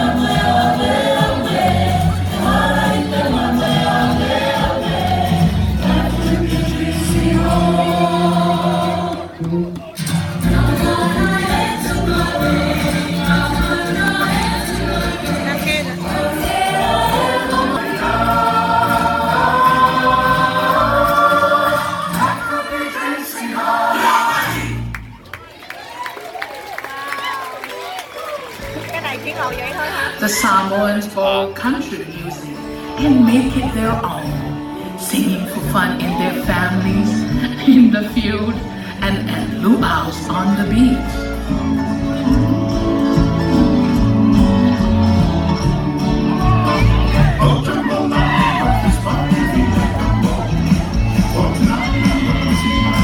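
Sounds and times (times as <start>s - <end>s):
choir singing: 0.0s - 9.6s, 10.4s - 25.0s, 41.4s - 53.0s
musical accompaniment: 0.0s - 25.4s, 28.5s - 53.0s.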